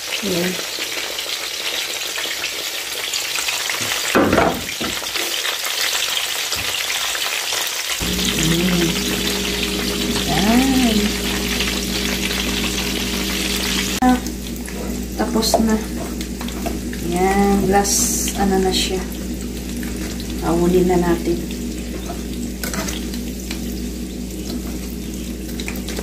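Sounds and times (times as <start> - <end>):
shrimp deep-frying in oil: 0.0 - 26.0
low steady hum: 8.0 - 26.0.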